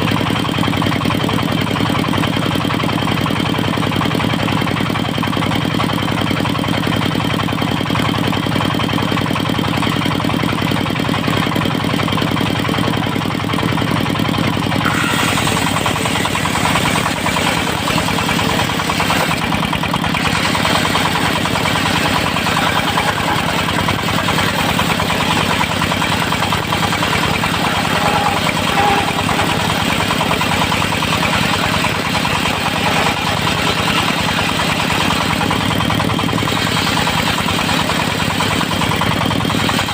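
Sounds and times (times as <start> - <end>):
sawmill engine running: 0.0 - 39.9
harsh hissing noise: 14.8 - 17.9.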